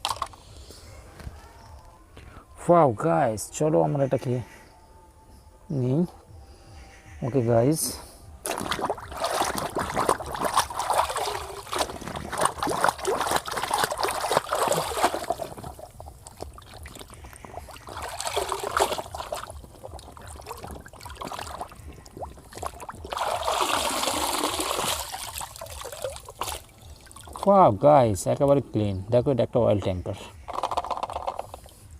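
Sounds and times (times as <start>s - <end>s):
water trickling and splashing: 8.4s - 27.7s.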